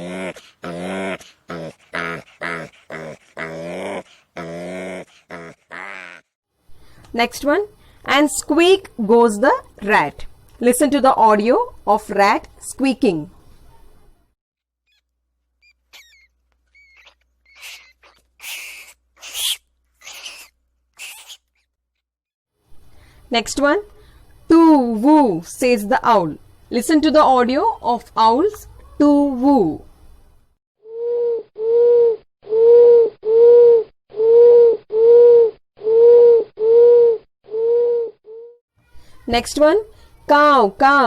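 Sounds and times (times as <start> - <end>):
rat squeaking: 14.9 - 21.6
owl hooting: 15.6 - 21.4, 30.9 - 38.5.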